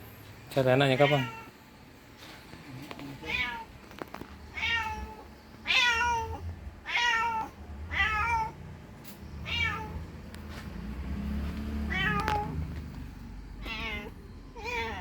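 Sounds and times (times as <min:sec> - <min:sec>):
cat meowing: 0:00.9 - 0:01.6, 0:03.2 - 0:03.8, 0:04.5 - 0:08.6, 0:09.4 - 0:10.1, 0:11.8 - 0:12.6, 0:13.6 - 0:15.0.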